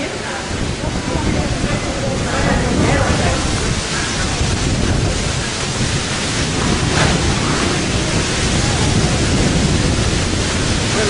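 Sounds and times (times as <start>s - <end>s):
storm wind buffeting microphone: 0.0s - 11.0s.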